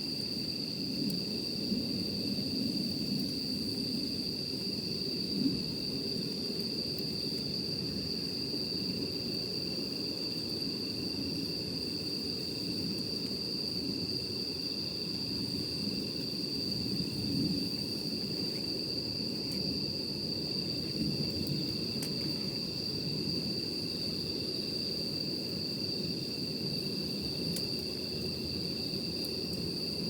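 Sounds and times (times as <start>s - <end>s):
campfire rumble: 0.0s - 30.0s
fire crackles: 0.0s - 30.0s
night insects calling: 0.0s - 30.0s.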